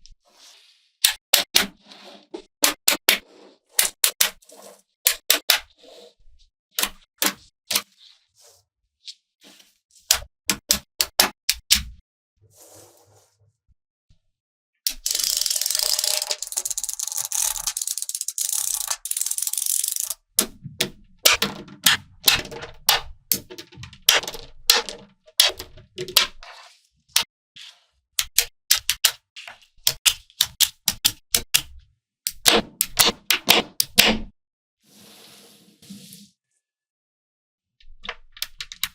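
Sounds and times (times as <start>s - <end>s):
magnetic balls clicking together: 14.9s - 20.2s.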